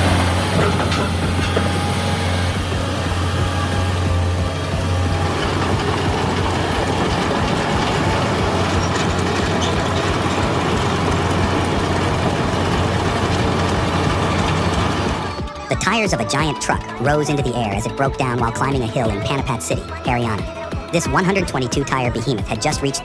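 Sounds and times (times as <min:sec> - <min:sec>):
metallic clanking and rattling: 0:00.0 - 0:15.7
heavy machinery engine drone: 0:00.0 - 0:23.0.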